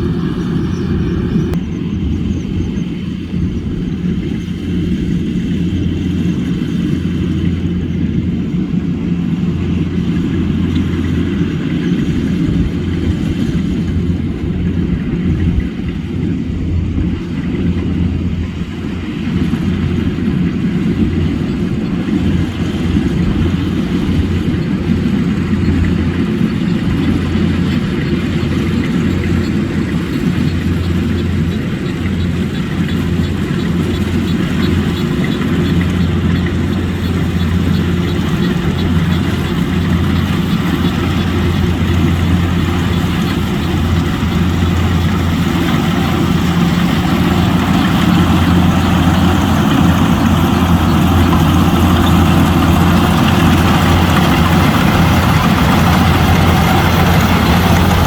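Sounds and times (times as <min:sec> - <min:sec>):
harvester engine droning: 0:00.0 - 0:58.0.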